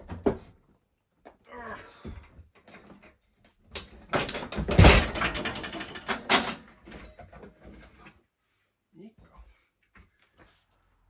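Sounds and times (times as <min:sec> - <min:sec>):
metal clattering and scraping: 0:03.9 - 0:08.1.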